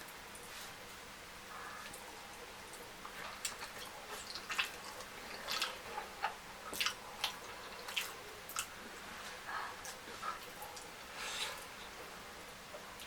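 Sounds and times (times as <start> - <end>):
person chewing food: 2.7 - 11.8.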